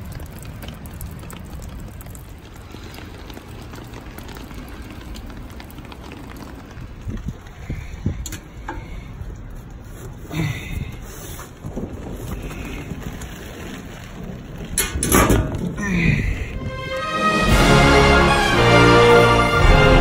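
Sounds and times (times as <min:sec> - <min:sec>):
rain on wet pavement: 0:00.0 - 0:20.0.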